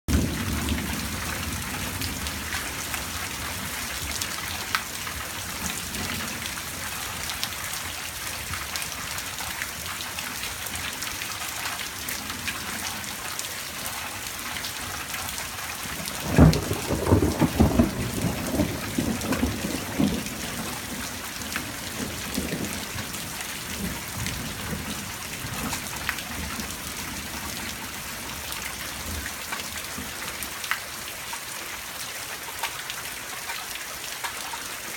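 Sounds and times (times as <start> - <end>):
steady rain: 0.1 - 34.9
thunder clap rumbling: 16.1 - 27.2.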